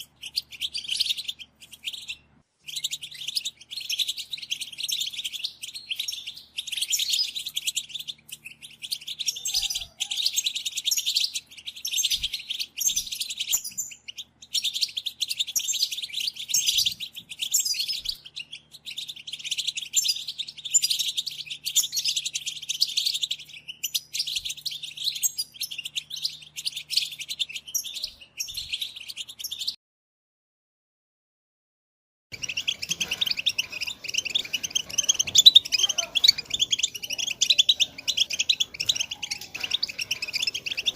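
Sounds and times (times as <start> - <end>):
goldfinches twittering: 32.3 - 40.9.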